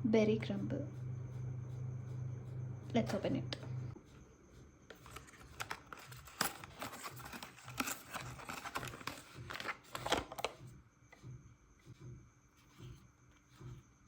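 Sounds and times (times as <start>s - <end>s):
wrapping crinkling and tearing: 5.0s - 10.4s.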